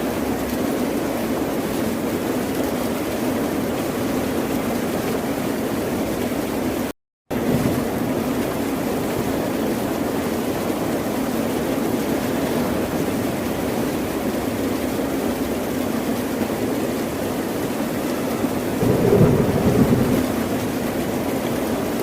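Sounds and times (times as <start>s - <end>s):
ocean surf: 18.4s - 21.3s.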